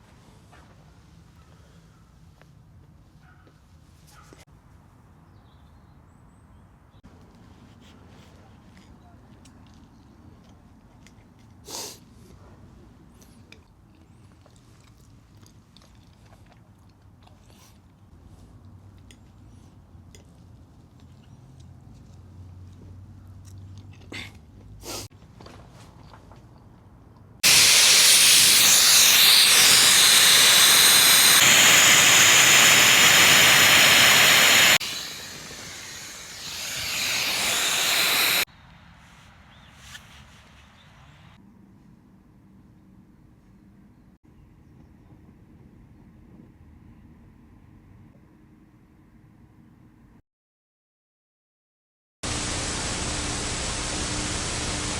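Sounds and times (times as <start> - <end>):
person chewing: 13.9 - 17.9
loud steady hissing: 27.4 - 38.5, 52.3 - 54.9.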